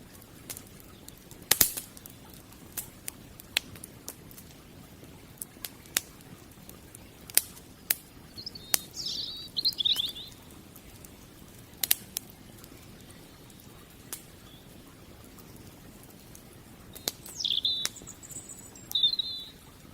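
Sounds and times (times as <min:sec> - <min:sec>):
wood fire crackling and popping: 0:00.0 - 0:19.9
small bird chirping: 0:08.3 - 0:10.5, 0:16.9 - 0:19.7.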